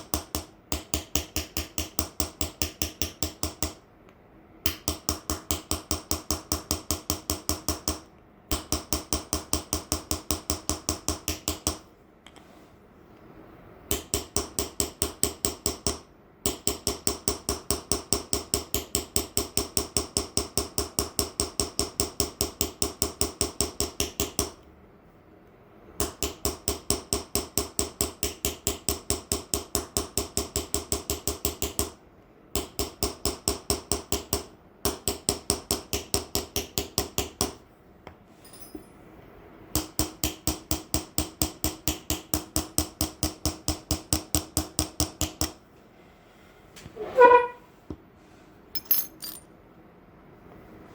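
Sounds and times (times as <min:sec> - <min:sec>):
hammer tapping chisel on metal: 0:00.0 - 0:03.8, 0:04.7 - 0:11.8, 0:13.9 - 0:24.6, 0:48.8 - 0:49.4.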